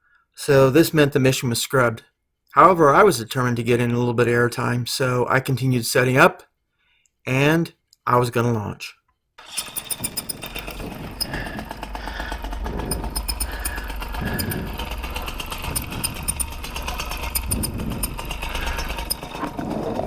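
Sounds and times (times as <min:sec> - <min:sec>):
paramotor engine and propeller: 0:09.4 - 0:20.0.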